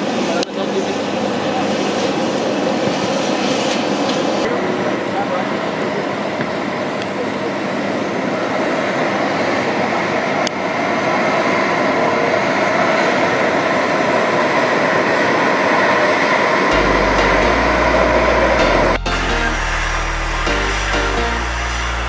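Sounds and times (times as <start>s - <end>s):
jet engines roaring with whine: 0.0s - 16.7s.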